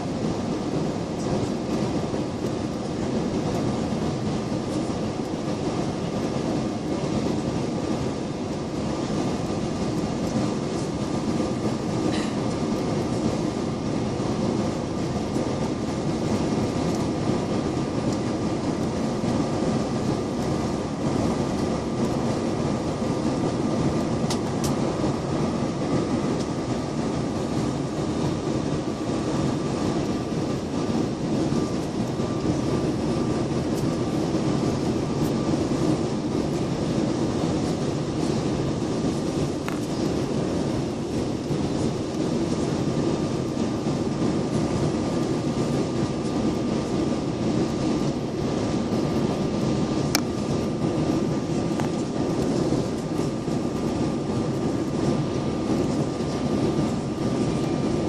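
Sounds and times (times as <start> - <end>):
airliner cabin engine drone: 0.0 - 58.0
faint steady whine: 0.0 - 58.0.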